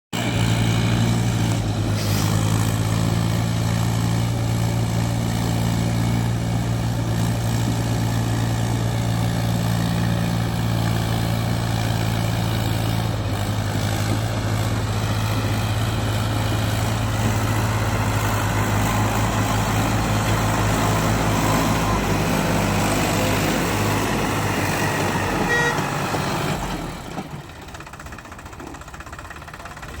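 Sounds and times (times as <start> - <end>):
tractor diesel engine running: 0.1 - 30.0.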